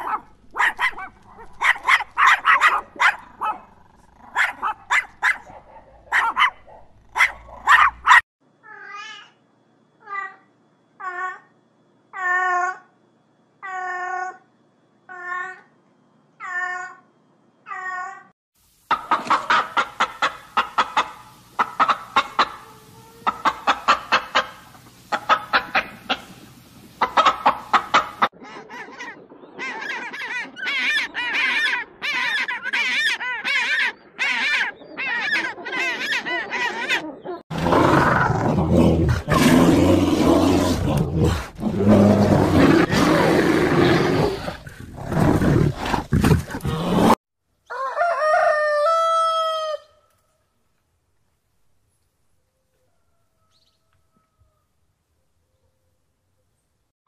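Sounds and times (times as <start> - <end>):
hen clucking: 18.9 - 31.6
bear roaring: 37.5 - 47.2.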